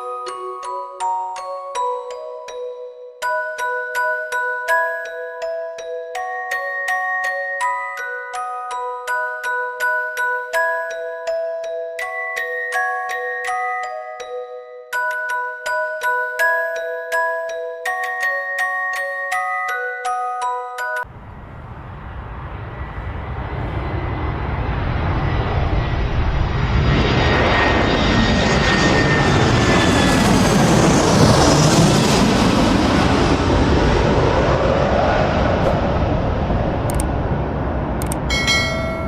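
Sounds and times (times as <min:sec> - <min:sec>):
faint falling whine: 0:21.1 - 0:34.6
jet aircraft flying past: 0:21.1 - 0:39.0.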